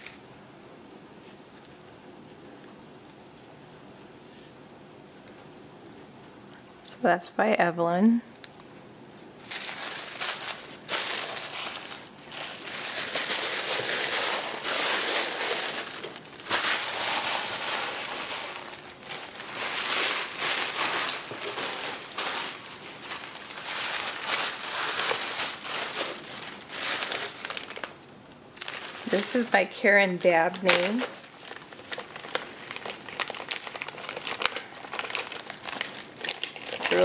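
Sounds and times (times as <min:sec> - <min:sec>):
packaging crinkling: 0:08.4 - 0:37.0.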